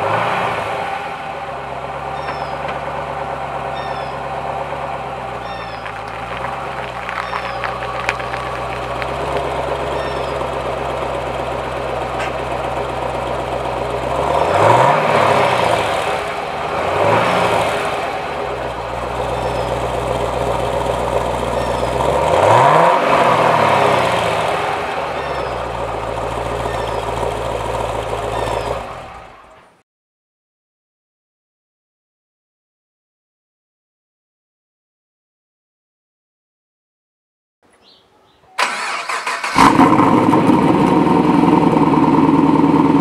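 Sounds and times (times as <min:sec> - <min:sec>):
car engine idling and revving: 0:00.0 - 0:29.8, 0:38.6 - 0:43.0.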